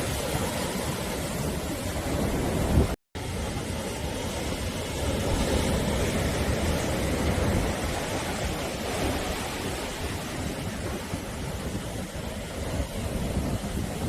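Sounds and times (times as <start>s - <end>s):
sea waves washing onto shore: 0.0s - 14.0s.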